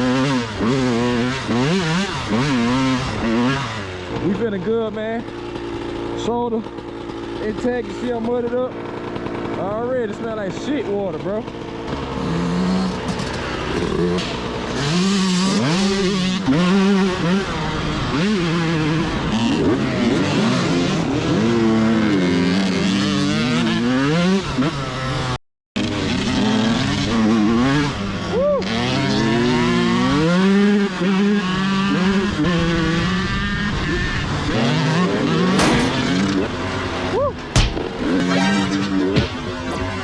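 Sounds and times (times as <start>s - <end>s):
dirt bike engines revving: 0.0s - 40.0s
sharp knocks: 35.6s - 36.7s, 37.5s - 39.4s.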